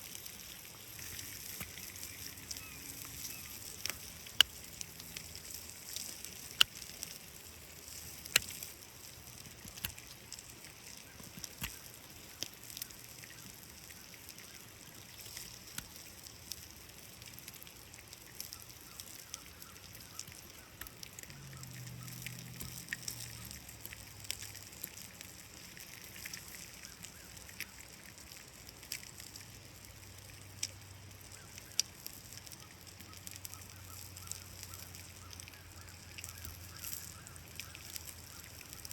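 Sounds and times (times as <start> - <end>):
food sizzling in a skillet: 0.0 - 14.3.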